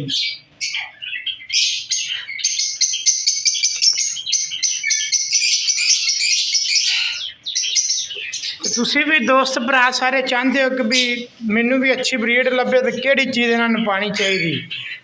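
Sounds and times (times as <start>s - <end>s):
lovebirds chirping: 0.0s - 15.0s.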